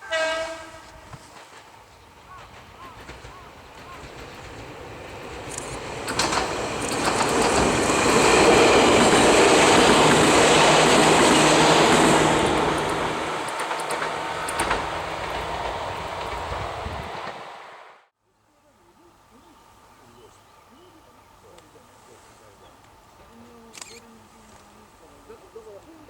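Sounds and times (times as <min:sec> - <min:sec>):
electric train passing: 0:00.0 - 0:26.0
wheels clacking over rail joints: 0:00.3 - 0:17.9.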